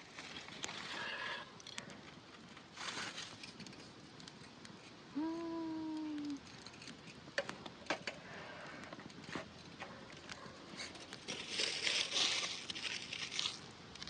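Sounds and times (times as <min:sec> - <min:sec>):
scraping rustle: 0:02.3 - 0:05.0, 0:08.2 - 0:13.7.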